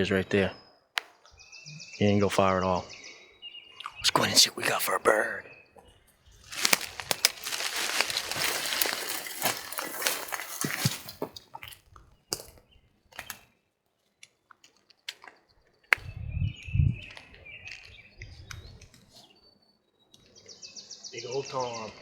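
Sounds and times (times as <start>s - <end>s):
footsteps through wet brush: 6.4s - 11.7s.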